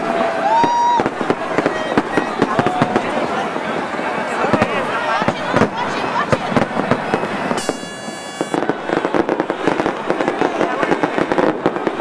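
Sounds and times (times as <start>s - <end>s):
fireworks bangs and crackling: 0.0s - 12.0s
steady high tone: 7.6s - 8.8s.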